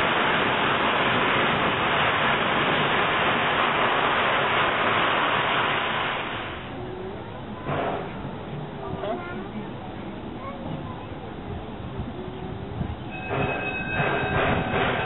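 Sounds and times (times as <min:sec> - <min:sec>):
steam locomotive venting steam: 0:00.0 - 0:06.8, 0:12.6 - 0:15.0.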